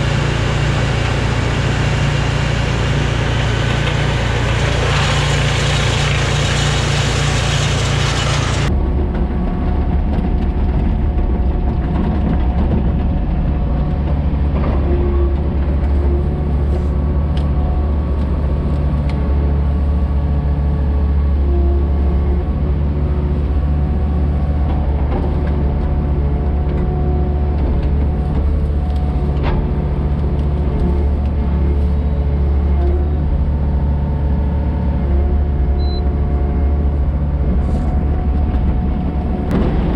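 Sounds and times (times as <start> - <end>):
loud rushing noise: 0.0 - 8.8, 38.9 - 39.9
heavy engine running: 0.0 - 39.9.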